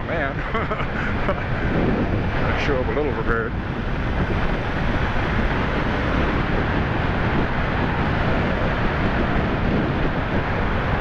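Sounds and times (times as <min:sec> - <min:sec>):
motorcycle running: 0:00.0 - 0:11.0
wind rush over microphone: 0:00.0 - 0:11.0.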